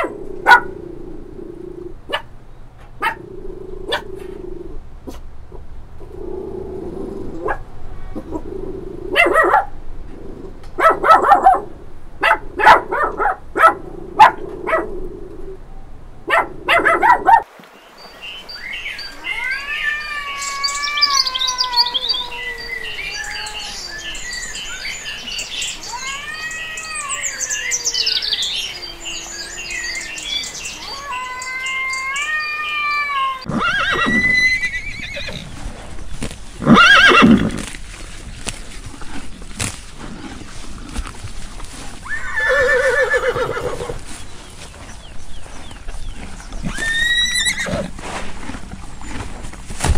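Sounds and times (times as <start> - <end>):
high bird chirping: 18.0 - 35.5
rising and falling animal calls: 18.9 - 35.6, 36.6 - 37.7, 42.0 - 44.0, 46.6 - 48.0
horse neighing: 25.9 - 35.6, 36.6 - 37.7, 42.0 - 44.0, 46.6 - 48.0.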